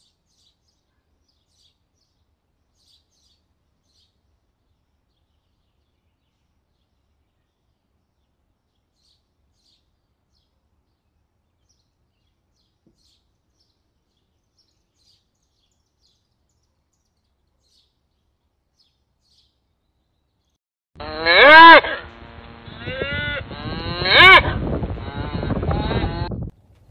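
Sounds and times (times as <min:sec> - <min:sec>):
robin chirping: 0:11.6 - 0:20.6
cow mooing: 0:21.0 - 0:26.3.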